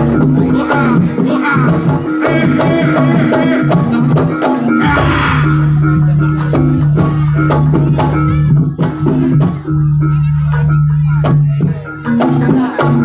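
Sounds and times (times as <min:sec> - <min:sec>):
pitched percussion notes: 0:00.0 - 0:13.0
drum strokes: 0:02.0 - 0:09.2
low held tone: 0:04.8 - 0:06.8.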